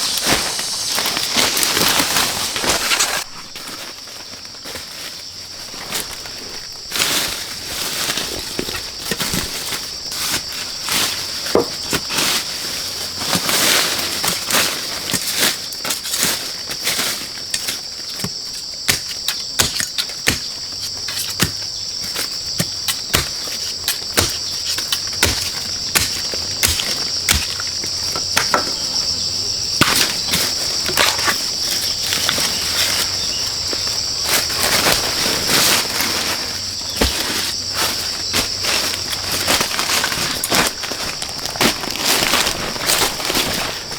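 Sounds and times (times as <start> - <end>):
handling clicks and rustles: 0.0 - 3.9, 29.7 - 43.9
insects trilling: 0.0 - 43.9.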